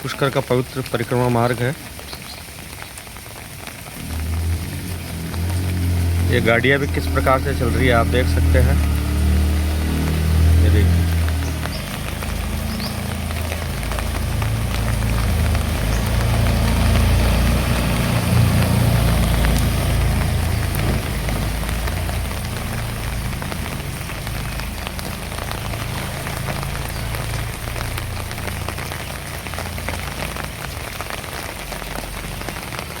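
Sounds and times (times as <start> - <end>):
heavy rain falling: 0.0 - 33.0
low rumble: 4.0 - 30.0.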